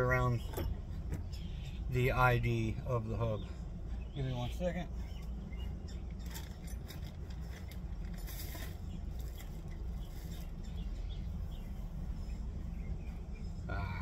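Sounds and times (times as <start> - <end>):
steady low hum: 0.0 - 14.0
objects clicking and rustling: 6.1 - 9.9.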